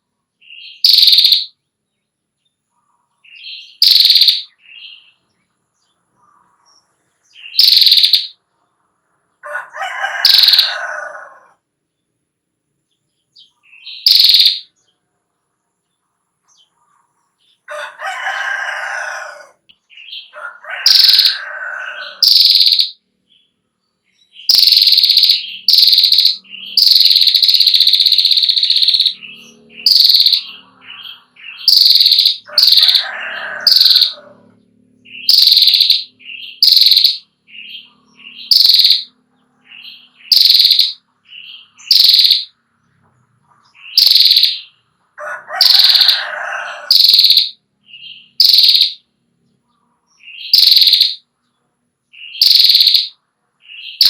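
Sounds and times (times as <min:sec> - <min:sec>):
bird harsh rapid call: 0:00.5 - 0:01.5, 0:03.6 - 0:05.0, 0:07.4 - 0:08.4, 0:09.9 - 0:11.5, 0:13.8 - 0:14.7, 0:18.2 - 0:23.0, 0:24.4 - 0:42.6, 0:43.8 - 0:49.0, 0:50.3 - 0:51.2, 0:52.2 - 0:53.2
lower rough bird calls: 0:02.7 - 0:11.6, 0:16.4 - 0:23.0, 0:24.2 - 0:51.4.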